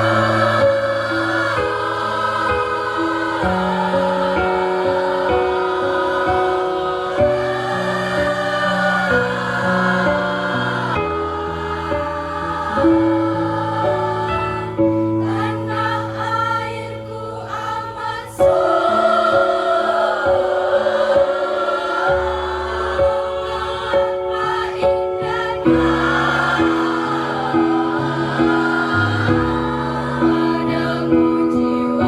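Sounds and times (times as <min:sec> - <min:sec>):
choir singing held chords: 0:00.0 - 0:32.0.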